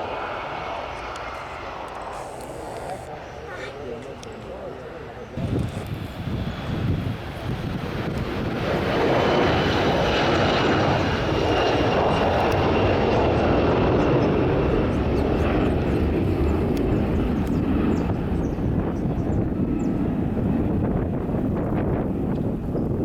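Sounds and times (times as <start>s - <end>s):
high fan whine: 0.0s - 3.4s, 5.2s - 12.6s
jet engines roaring: 0.0s - 23.0s.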